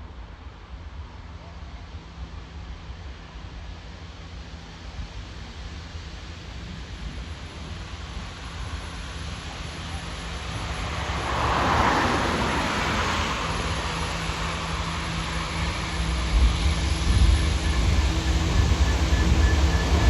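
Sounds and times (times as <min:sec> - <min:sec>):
diesel locomotive engine drone: 0:00.0 - 0:20.0
rushing noise: 0:07.4 - 0:20.0.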